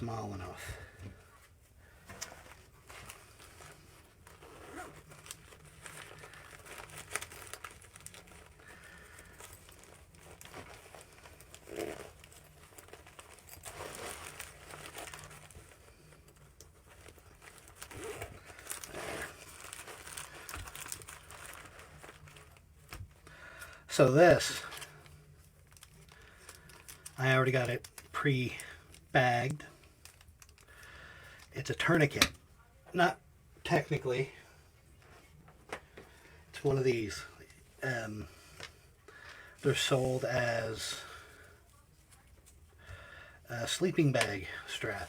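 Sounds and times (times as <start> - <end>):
cloth rustling and crinkling: 0.2 - 23.3.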